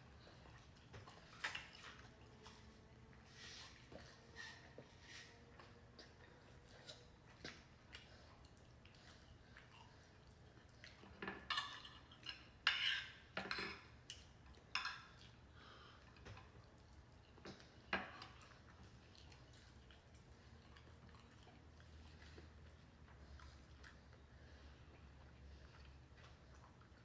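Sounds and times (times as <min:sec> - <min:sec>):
cutlery clinking against dishes: 0:11.2 - 0:13.9.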